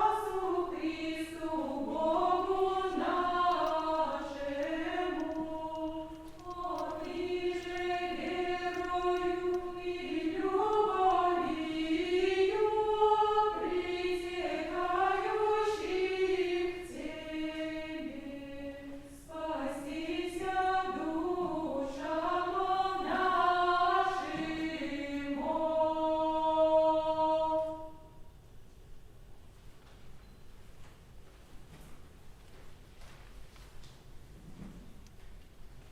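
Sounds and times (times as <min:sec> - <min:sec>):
unaccompanied choir singing: 0:00.0 - 0:28.3.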